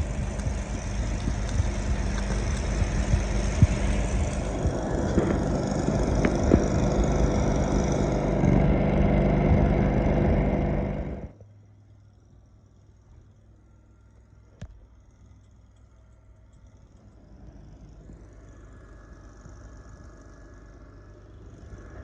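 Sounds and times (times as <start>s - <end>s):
sharp knocks and clanks: 0.0s - 8.7s
engine running: 0.0s - 22.0s
faint low hum: 0.0s - 22.0s.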